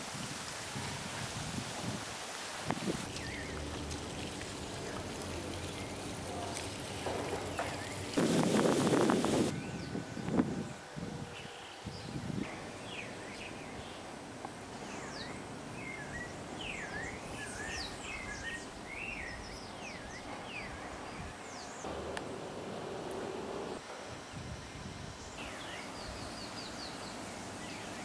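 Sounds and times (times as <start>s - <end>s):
steady background hiss: 0.0s - 28.0s
birds chirping: 3.1s - 8.2s.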